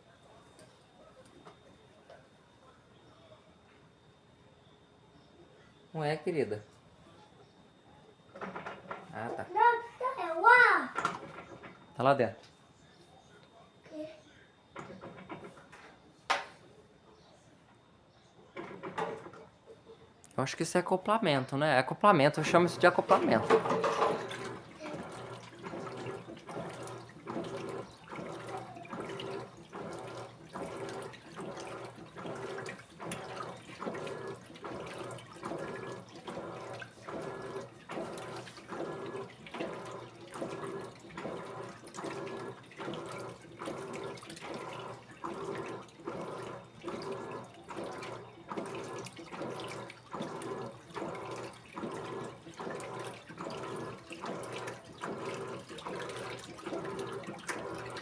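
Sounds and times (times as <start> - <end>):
washing machine water sloshing: 8.3 - 12.4, 14.8 - 15.8, 18.4 - 19.8, 20.4 - 58.0.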